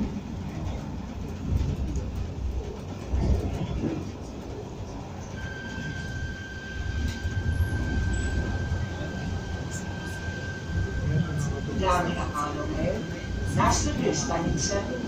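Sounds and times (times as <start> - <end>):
train rumbling on track: 0.0 - 15.0
high whine: 5.4 - 15.0.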